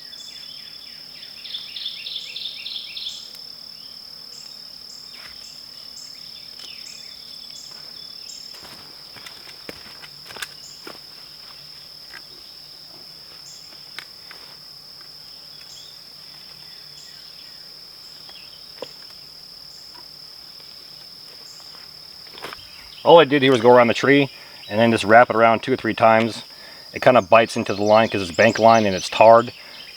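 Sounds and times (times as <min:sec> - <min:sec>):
high insect chirp: 0:00.0 - 0:29.9
insects trilling: 0:00.0 - 0:29.9
handling clicks and rustles: 0:08.6 - 0:12.5.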